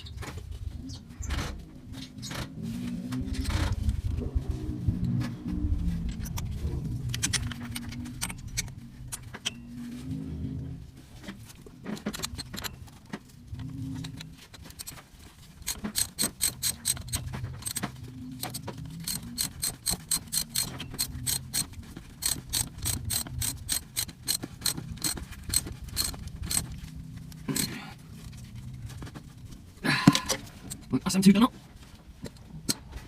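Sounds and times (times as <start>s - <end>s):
ratchet wrench clicking: 14.6s - 15.0s, 15.6s - 17.8s, 18.4s - 26.7s, 27.5s - 27.7s.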